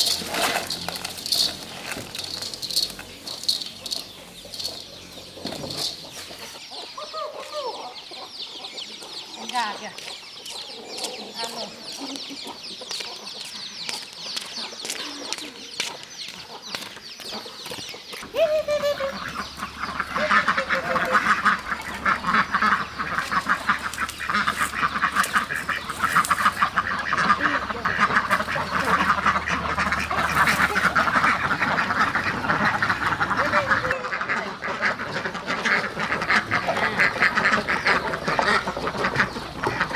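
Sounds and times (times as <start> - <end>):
ducks quacking: 18.2 - 39.9.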